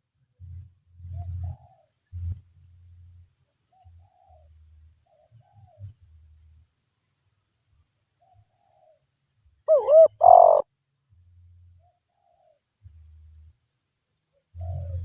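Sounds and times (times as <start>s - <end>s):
dove cooing: 1.2s - 1.9s, 9.7s - 10.6s, 14.6s - 15.0s.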